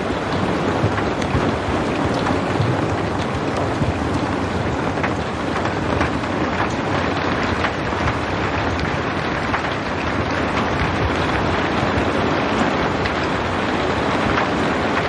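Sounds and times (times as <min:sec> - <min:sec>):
raindrop ticks: 0:00.0 - 0:15.0
steady rain hiss: 0:00.0 - 0:15.0.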